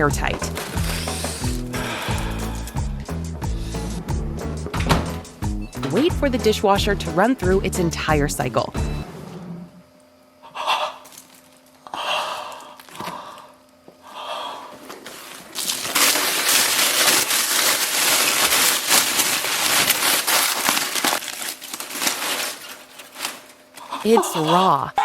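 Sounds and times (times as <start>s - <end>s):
tin foil crinkling: 0.0s - 2.8s, 15.0s - 24.8s.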